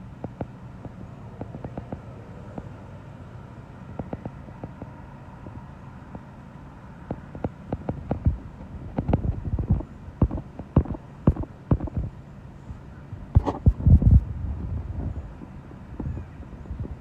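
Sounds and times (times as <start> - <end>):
steady low hum: 0.0 - 17.0
wind buffeting microphone: 7.1 - 17.0.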